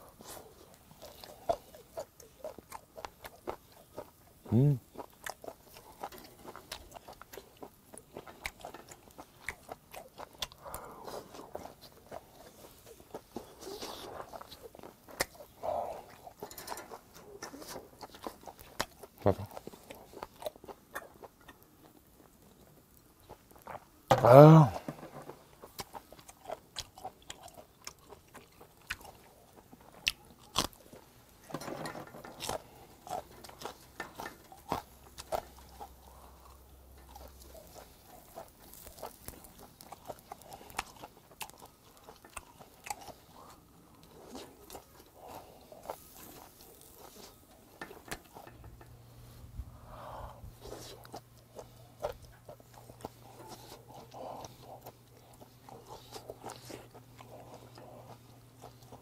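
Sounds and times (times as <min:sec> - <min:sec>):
person chewing: 0:00.0 - 0:31.6, 0:32.2 - 0:59.0
metal tongs clicking on grill: 0:16.5 - 0:16.9.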